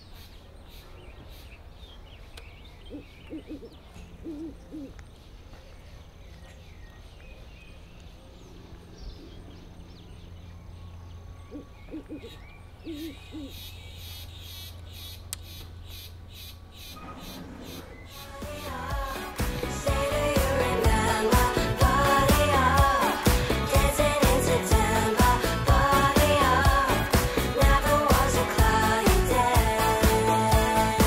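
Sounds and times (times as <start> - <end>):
bird low hooting calls: 2.4 - 7.1, 7.7 - 18.4
low hum: 16.2 - 31.0.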